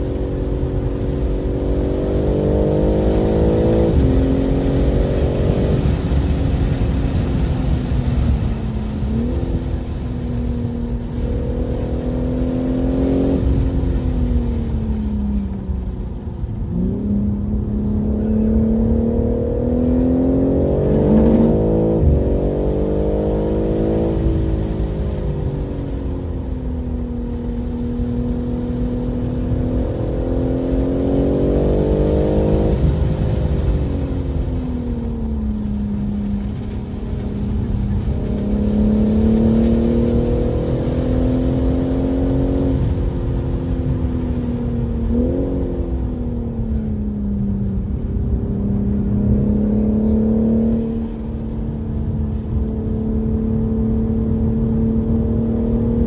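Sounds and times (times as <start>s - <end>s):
car engine revving hard: 0.0s - 8.4s, 11.1s - 14.0s, 16.7s - 25.0s, 28.0s - 34.5s, 36.5s - 44.2s, 48.9s - 51.5s
road and tyre rumble: 0.0s - 56.0s.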